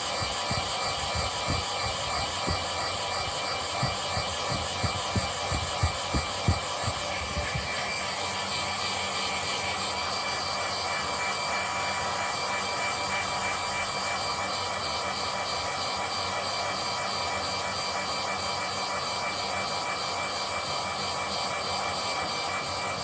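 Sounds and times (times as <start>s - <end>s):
electric motor whirring: 0.0s - 8.2s
thin whining tones: 0.0s - 8.2s.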